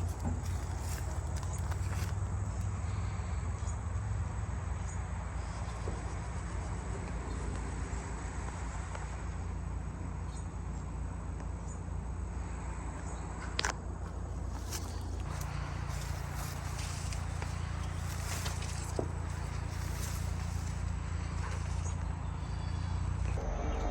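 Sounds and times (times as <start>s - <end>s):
low rumble: 14.2s - 23.9s.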